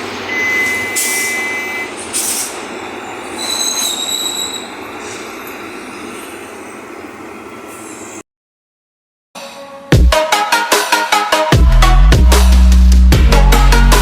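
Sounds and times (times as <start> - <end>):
bus running: 0.0 - 8.2
sharp air hisses: 1.0 - 1.4, 2.1 - 2.6
high-pitched squeals: 2.2 - 7.0.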